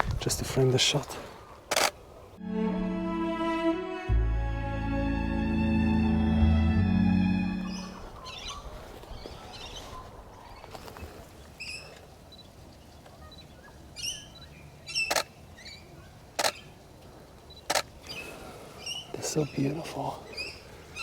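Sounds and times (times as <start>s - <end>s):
camera shutter firing: 1.7s - 2.0s
high bird chirps: 7.6s - 9.8s.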